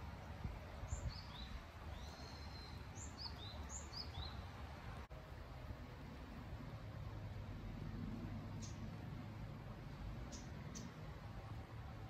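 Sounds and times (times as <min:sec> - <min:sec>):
small bird calling: 0:00.9 - 0:04.5, 0:10.3 - 0:11.0.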